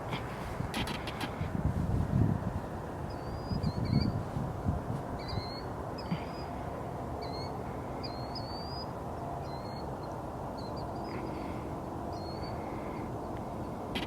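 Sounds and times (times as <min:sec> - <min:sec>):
birds chirping: 0:02.5 - 0:04.3, 0:05.1 - 0:14.0.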